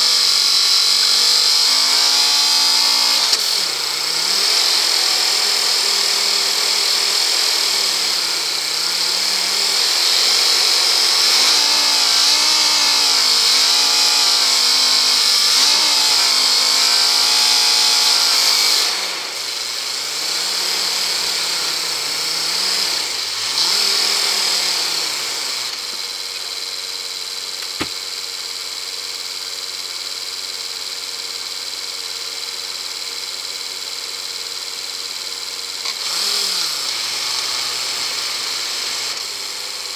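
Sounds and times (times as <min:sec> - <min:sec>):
vehicle engine revving: 0:00.0 - 0:28.1
sharp click: 0:27.6 - 0:28.0.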